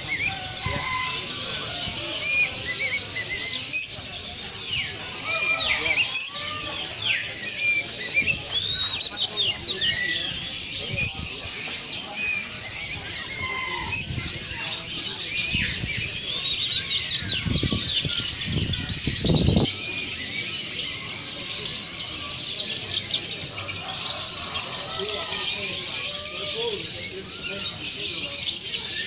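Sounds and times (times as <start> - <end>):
songbirds chirping: 0.0 - 29.0.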